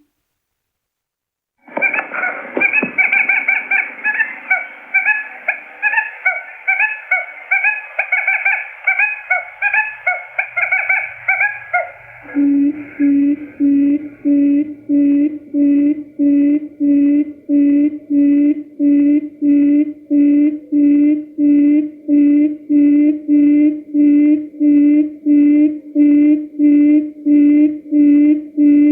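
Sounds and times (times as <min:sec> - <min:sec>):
quail call chirping: 0:01.7 - 0:13.7
low hooting notes: 0:01.8 - 0:28.9.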